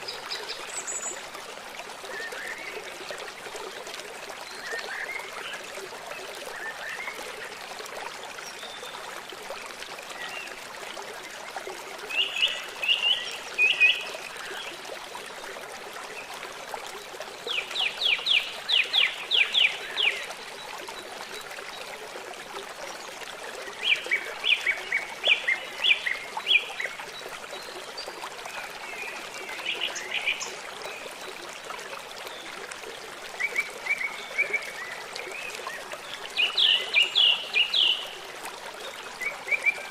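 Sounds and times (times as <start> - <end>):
river running: 0.0 - 39.9
songbird singing: 36.3 - 38.2.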